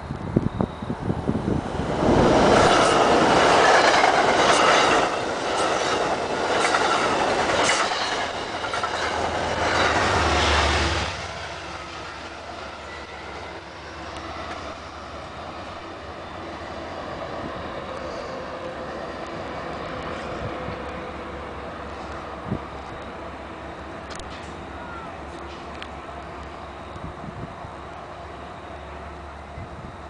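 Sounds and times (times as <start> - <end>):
passenger train rushing past: 0.0 - 30.0
wheels clacking on rails: 1.4 - 15.0.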